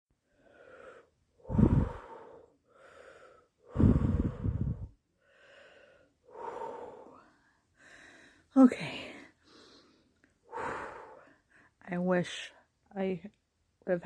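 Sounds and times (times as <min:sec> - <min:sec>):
woman breathing heavily: 0:00.2 - 0:11.8
breath blowing on microphone: 0:01.4 - 0:02.4, 0:03.7 - 0:05.0.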